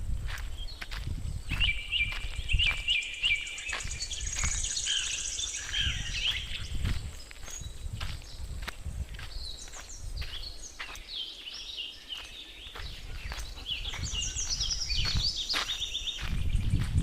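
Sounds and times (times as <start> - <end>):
birds chirping: 0.3 - 17.0.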